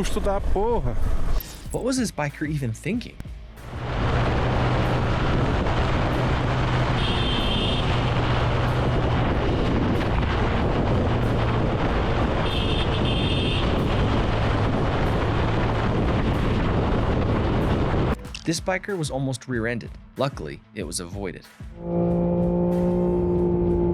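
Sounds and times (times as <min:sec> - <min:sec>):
motorcycle engine drone: 0:03.5 - 0:18.2, 0:21.8 - 0:23.9
wind rush on microphone: 0:03.7 - 0:18.2.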